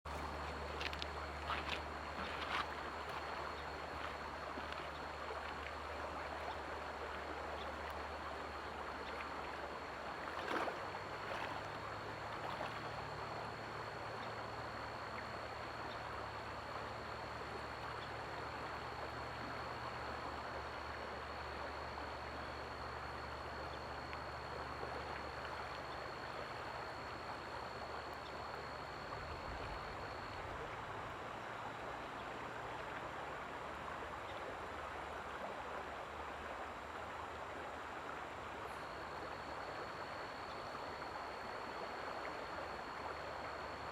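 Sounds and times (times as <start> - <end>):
stream water rushing: 0.1 - 23.5.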